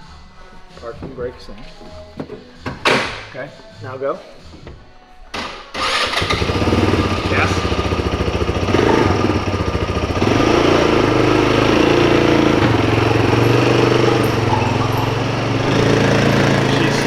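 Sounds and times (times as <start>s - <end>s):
utility vehicle engine running: 5.8s - 17.0s.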